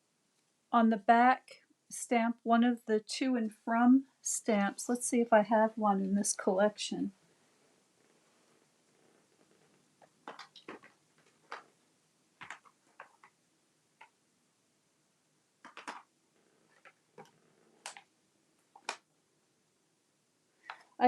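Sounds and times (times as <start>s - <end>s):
plastic cases clicking and tapping: 10.0s - 11.7s, 12.4s - 13.4s, 15.6s - 16.1s.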